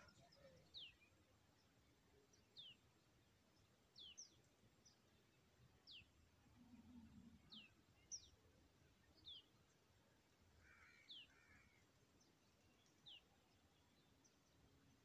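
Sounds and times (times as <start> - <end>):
faint high bird chirps: 0.0 - 1.2.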